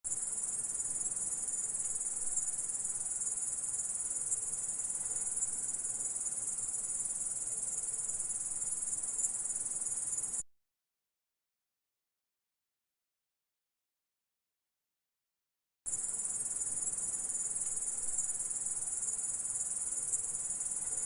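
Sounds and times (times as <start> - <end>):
grasshopper stridulating: 0.1 - 10.4, 15.9 - 21.0.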